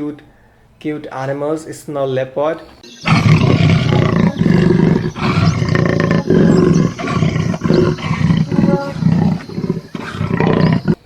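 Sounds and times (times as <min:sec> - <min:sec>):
big cat roaring and growling: 0:03.0 - 0:11.0.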